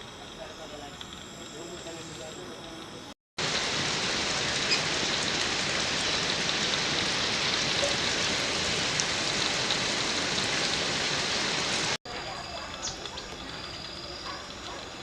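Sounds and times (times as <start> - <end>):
hiss of water: 3.4 - 12.0.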